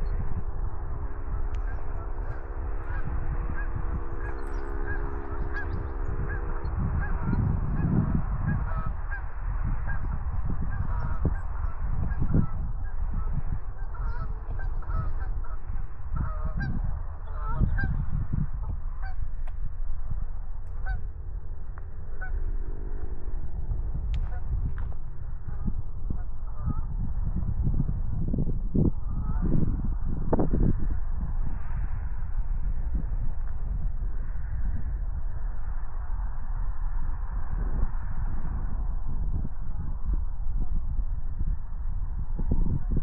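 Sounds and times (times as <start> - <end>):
heavy low rumble: 0.0 - 43.0
geese honking: 1.2 - 9.3, 9.9 - 12.6, 13.2 - 18.0, 19.0 - 19.2, 20.7 - 21.1, 22.0 - 23.1.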